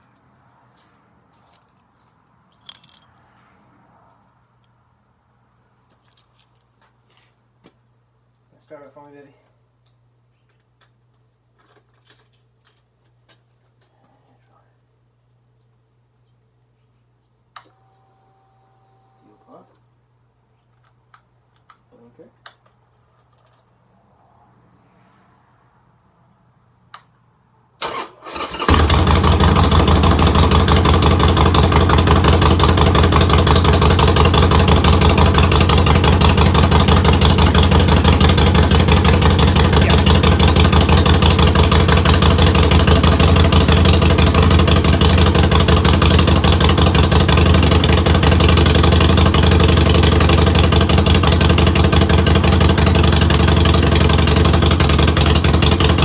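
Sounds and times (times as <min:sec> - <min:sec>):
click: 0:17.6 - 0:17.8
starter motor cranking: 0:27.8 - 0:31.0
motorcycle engine running: 0:28.4 - 0:56.0.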